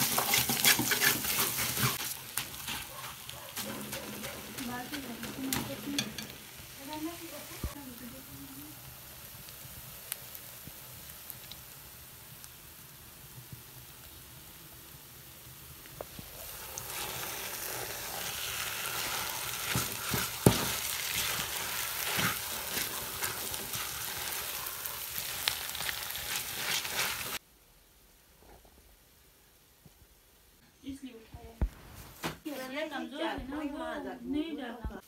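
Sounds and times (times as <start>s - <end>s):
steel spoon scraping a pot: 0.0s - 2.8s, 16.8s - 24.6s, 25.2s - 27.4s
halwa sizzling in a steel pot: 0.0s - 27.4s.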